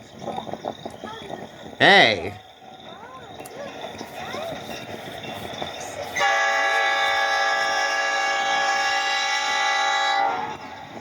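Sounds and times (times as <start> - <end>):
locomotive air horn chord: 6.2 - 11.0.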